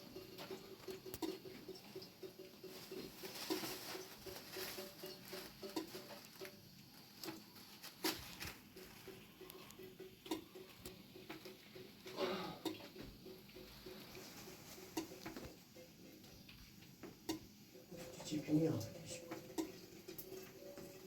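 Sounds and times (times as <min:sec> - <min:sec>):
rain pattering: 0:00.0 - 0:21.0.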